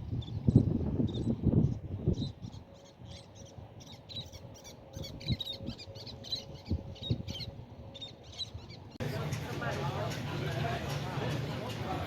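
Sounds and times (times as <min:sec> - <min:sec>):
small bird chirping: 0:00.0 - 0:09.0.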